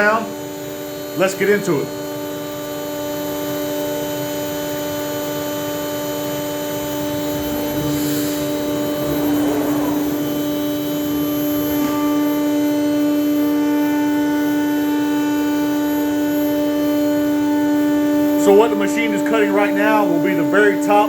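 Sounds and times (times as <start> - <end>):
router spindle whining: 5.8 - 12.9.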